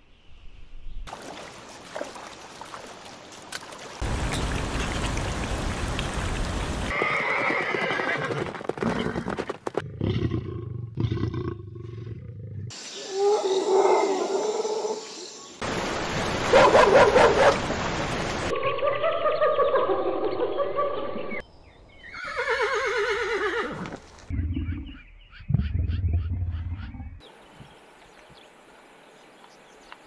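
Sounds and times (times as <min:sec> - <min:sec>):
noisy hiss: 0:15.6 - 0:18.5.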